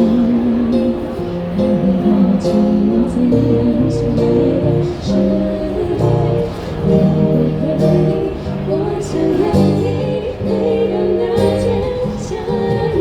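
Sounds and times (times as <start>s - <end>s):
steady bass notes: 0.0s - 12.0s
amplified guitar chords: 0.0s - 13.0s.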